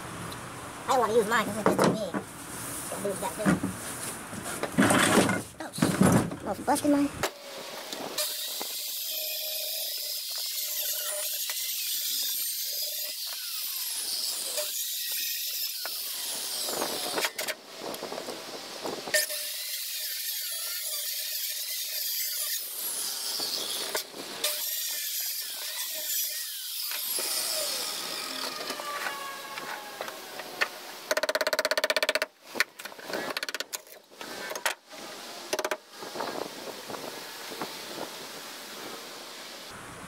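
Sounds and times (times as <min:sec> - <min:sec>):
cordless power tool running: 0:26.9 - 0:30.8.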